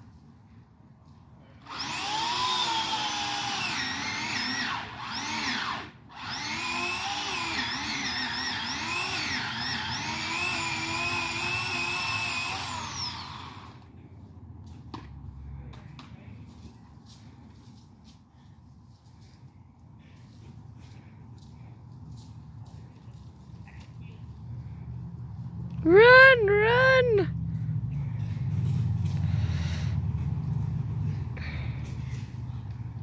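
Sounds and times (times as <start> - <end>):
chainsaw cutting wood: 1.6 - 13.9.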